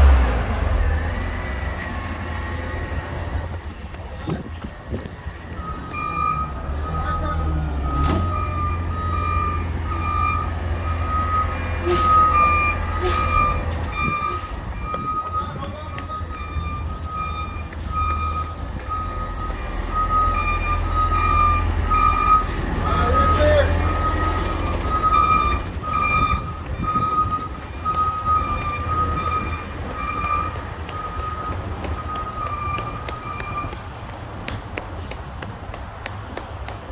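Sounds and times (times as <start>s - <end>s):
diesel engine running: 0.0s - 36.9s
backup alarm beeping: 5.5s - 33.8s.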